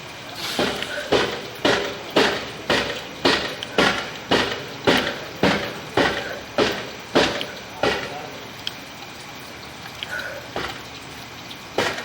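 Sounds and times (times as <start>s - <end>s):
steady pounding strikes: 0.6s - 8.4s, 10.5s - 10.9s, 11.8s - 12.0s.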